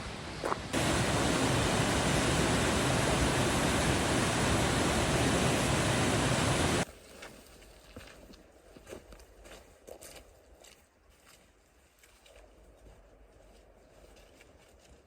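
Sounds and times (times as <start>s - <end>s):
fast-flowing water rushing: 0.0s - 6.8s.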